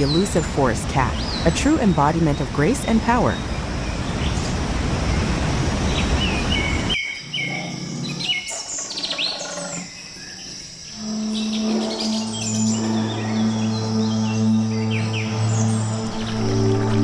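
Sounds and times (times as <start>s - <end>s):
birds chirping and whistling: 5.9s - 17.0s
low music drone: 10.9s - 17.0s.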